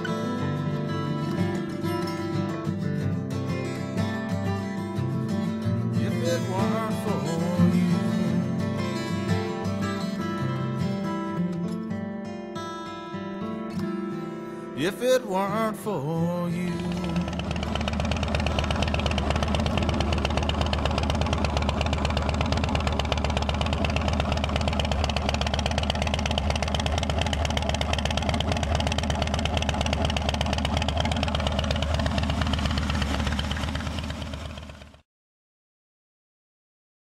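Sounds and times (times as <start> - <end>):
motorcycle engine running: 5.5 - 10.2, 16.6 - 35.0.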